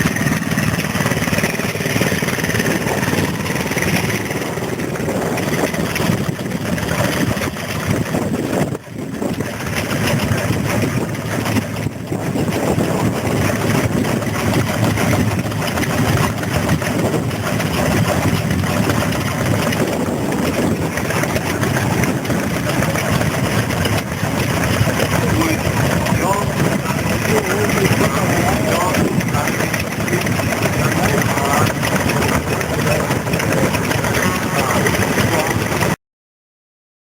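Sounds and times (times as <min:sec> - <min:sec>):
stationary engine running: 0:00.0 - 0:36.0.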